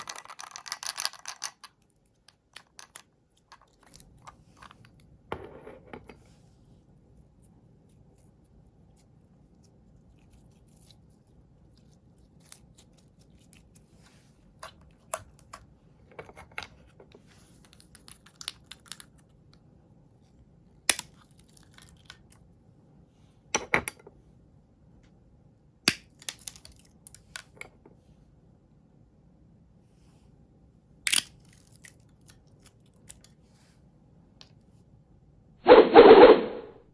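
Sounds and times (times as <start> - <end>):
shells cracking and crushing: 0.0 - 4.3, 20.9 - 22.4, 31.1 - 33.3.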